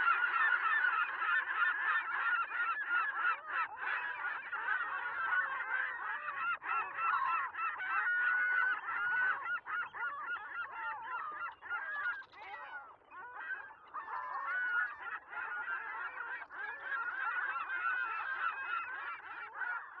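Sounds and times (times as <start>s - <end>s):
flock of birds calling: 0.0s - 20.0s.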